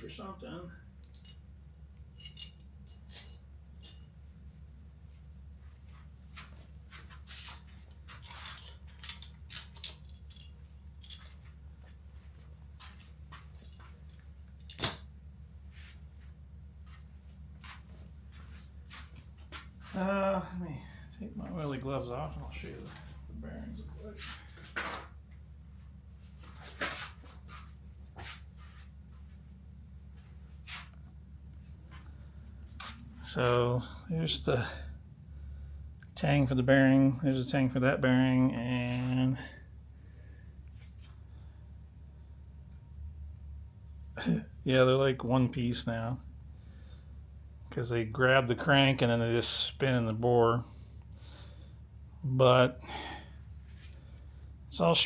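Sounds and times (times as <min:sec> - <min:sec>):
steady low hum: 0:00.0 - 0:55.0
metal parts clinking: 0:01.0 - 0:01.5, 0:02.1 - 0:04.2, 0:07.5 - 0:11.6, 0:13.5 - 0:15.2
metal parts scraping: 0:07.4 - 0:11.6.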